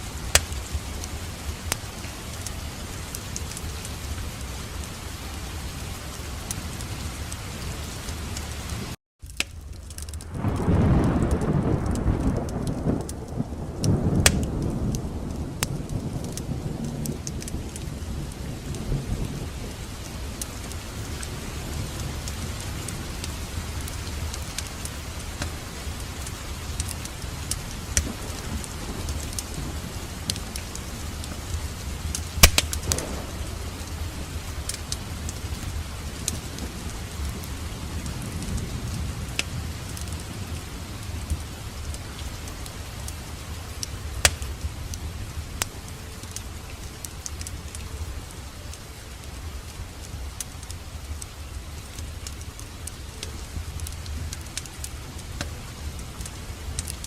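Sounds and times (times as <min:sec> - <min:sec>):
wood fire crackling: 0:00.0 - 0:57.0
sharp pops of fire: 0:00.3 - 0:00.8, 0:09.2 - 0:16.4, 0:32.1 - 0:35.4, 0:43.8 - 0:44.6.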